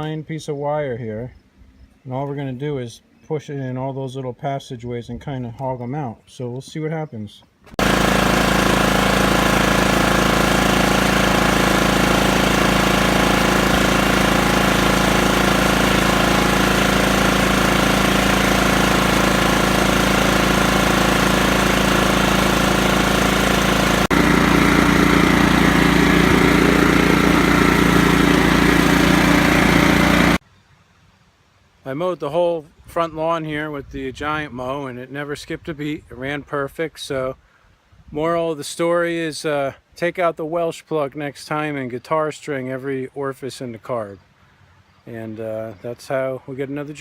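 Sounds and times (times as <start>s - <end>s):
riding mower engine running: 7.7s - 30.4s.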